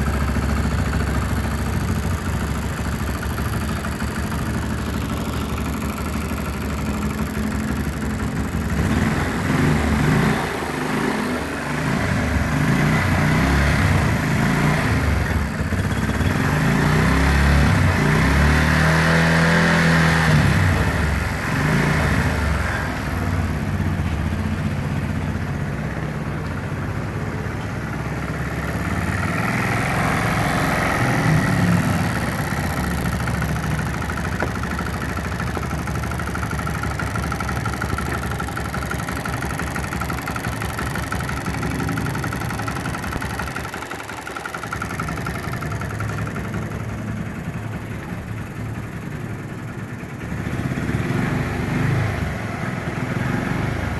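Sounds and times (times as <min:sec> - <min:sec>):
motorcycle engine idling: 0:00.0 - 0:53.9.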